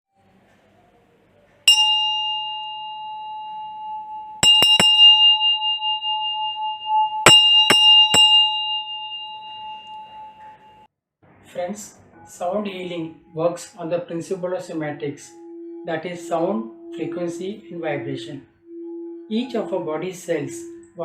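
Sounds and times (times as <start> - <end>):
small metal bell ringing: 1.7 - 10.8.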